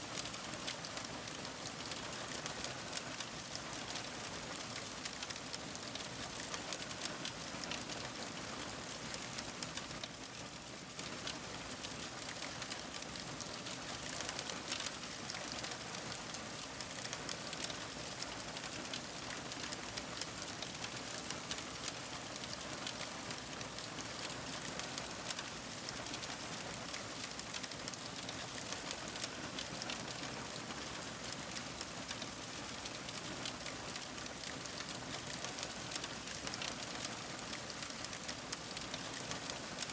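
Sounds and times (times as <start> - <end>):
wood fire crackling: 5.0 - 5.3, 17.0 - 20.3, 26.9 - 30.2, 33.7 - 39.6.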